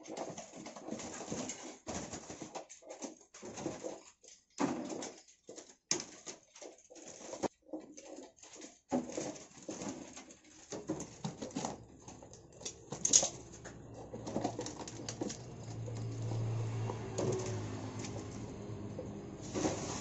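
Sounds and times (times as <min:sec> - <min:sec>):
small birds fluttering and scrabbling: 0:00.0 - 0:20.0.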